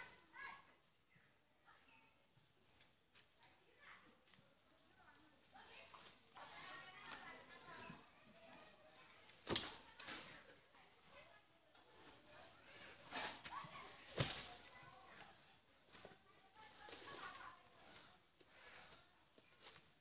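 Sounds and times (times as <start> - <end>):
small bird chirping: 2.6 - 2.9, 7.2 - 8.8, 11.0 - 19.0.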